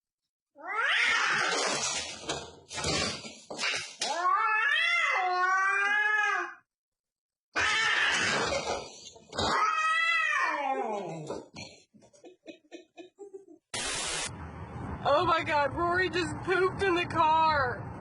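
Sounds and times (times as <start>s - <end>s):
cat yowling: 0.6s - 1.5s, 4.1s - 6.6s, 7.6s - 8.5s, 9.4s - 11.2s.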